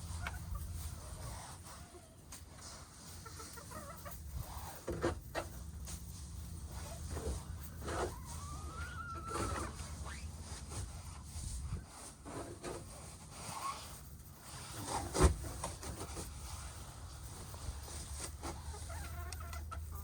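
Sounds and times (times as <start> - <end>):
hens calling softly: 6.7 - 10.0.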